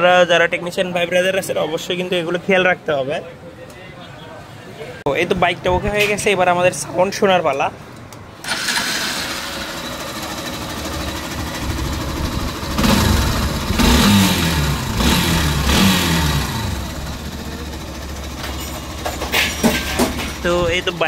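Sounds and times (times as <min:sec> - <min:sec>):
man talking: 0:00.0 - 0:07.8, 0:20.4 - 0:21.0
motorcycle engine idling and revving: 0:08.4 - 0:21.0.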